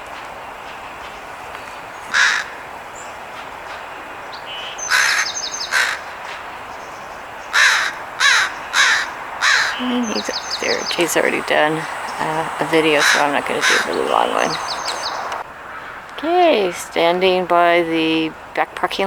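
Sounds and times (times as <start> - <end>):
crows cawing: 2.1 - 2.6, 4.8 - 6.4, 7.5 - 16.1
small bird twittering: 7.6 - 15.4.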